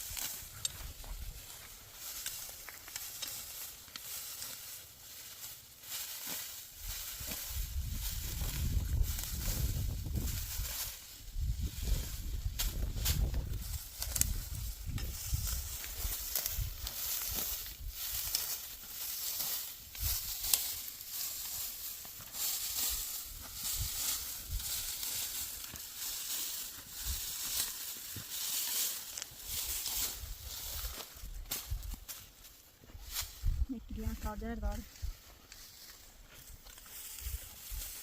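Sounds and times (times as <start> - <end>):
dry stalks rustling and crackling: 0.0 - 38.0.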